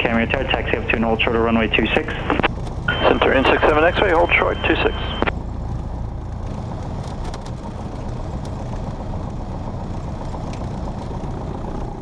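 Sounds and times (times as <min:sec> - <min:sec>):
light aircraft engine droning: 0:00.0 - 0:12.0.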